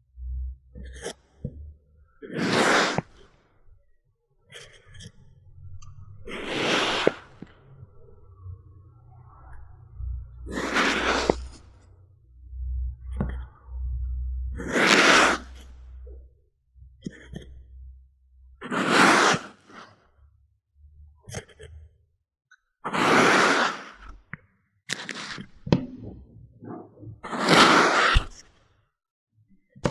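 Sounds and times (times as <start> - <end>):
faint low rumble: 0.0 - 2.2, 5.2 - 14.7
sand crumbling swishes: 2.3 - 3.2, 6.3 - 7.4, 10.5 - 11.6.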